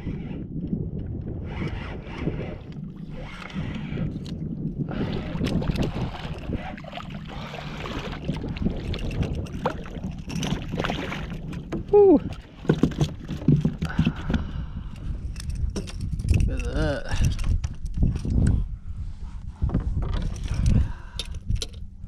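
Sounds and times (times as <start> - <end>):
wind buffeting microphone: 0.0 - 22.0
water splashing and sloshing: 1.0 - 16.4
light knocks against boat: 9.3 - 14.4.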